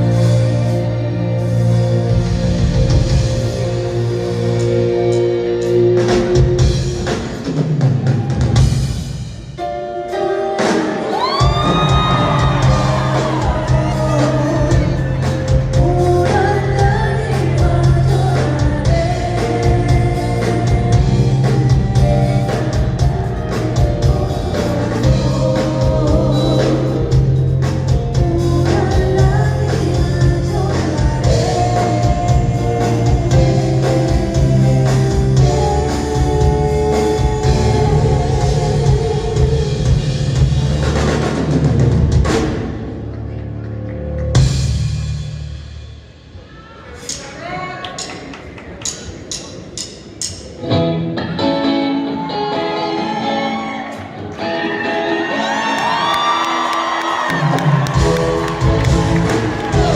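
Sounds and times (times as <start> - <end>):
live band playing: 0.0 - 59.9
person singing: 9.6 - 40.4, 51.2 - 59.9
drum beat: 11.2 - 16.2, 57.3 - 59.9.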